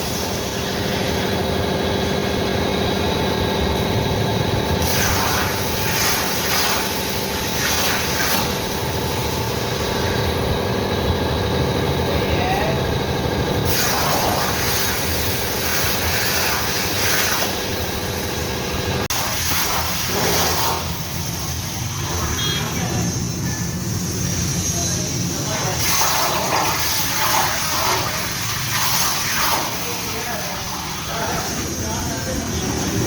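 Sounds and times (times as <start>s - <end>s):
machinery running: 0.0s - 33.0s
hissing bursts: 4.5s - 10.6s, 13.5s - 18.3s, 19.0s - 33.0s.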